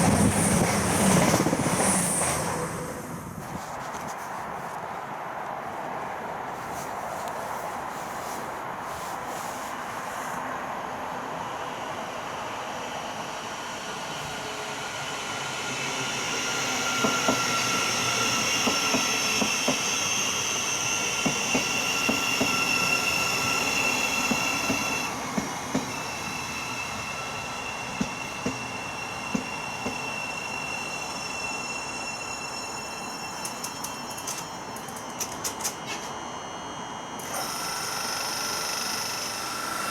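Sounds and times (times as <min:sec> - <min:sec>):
passenger train rumble: 0:00.0 - 0:37.6
high-pitched wheel squeal: 0:26.2 - 0:39.9
wheels clicking over rail joints: 0:33.4 - 0:36.1.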